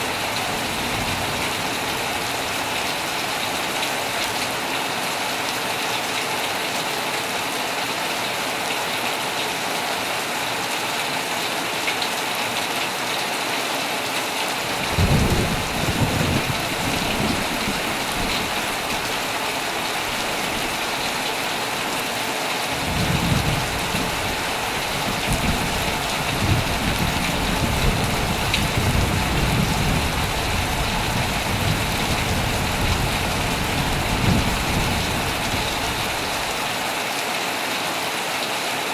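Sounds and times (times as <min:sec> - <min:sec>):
thunder rumbling: 0:00.0 - 0:04.4, 0:14.6 - 0:36.8
heavy rain falling: 0:00.0 - 0:38.9.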